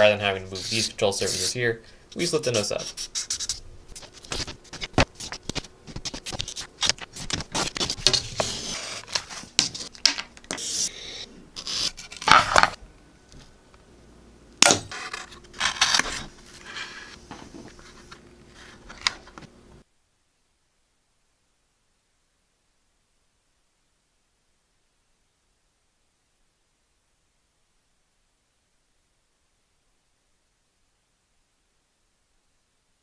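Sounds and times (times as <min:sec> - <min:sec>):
scraping and tearing: 0:11.6 - 0:12.8, 0:14.9 - 0:19.4.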